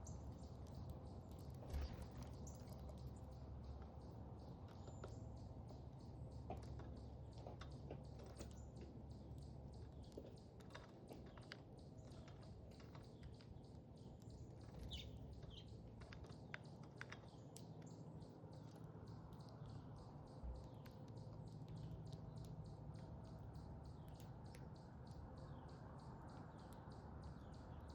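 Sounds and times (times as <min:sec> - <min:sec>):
low steady hum: 0:00.0 - 0:07.4
birds feeding clicks and taps: 0:00.0 - 0:27.9.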